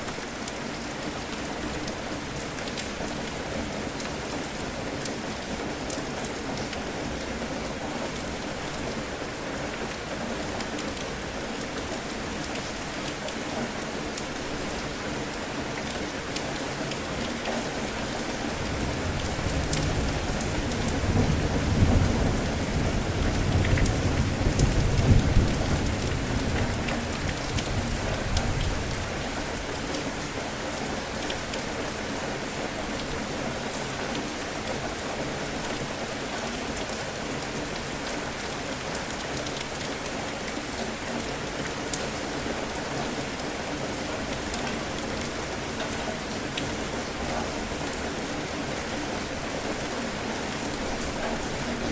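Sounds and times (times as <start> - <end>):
rain falling: 0.0 - 51.9
low roll of thunder: 18.8 - 26.7.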